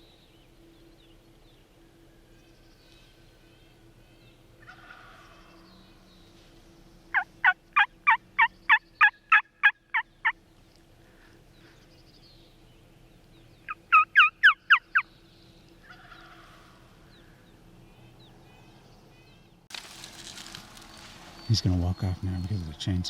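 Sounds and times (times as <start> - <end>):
turkey yelping: 4.6 - 5.2, 7.2 - 10.0, 13.7 - 15.0, 15.8 - 16.8
distant turkey gobble: 4.6 - 5.6, 7.1 - 10.4, 13.7 - 15.1, 15.8 - 17.4.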